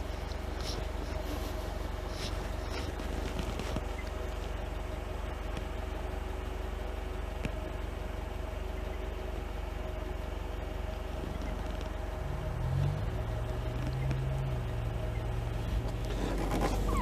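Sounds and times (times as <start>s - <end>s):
atv engine idling: 0.0s - 17.0s
deeper engine note: 10.8s - 17.0s.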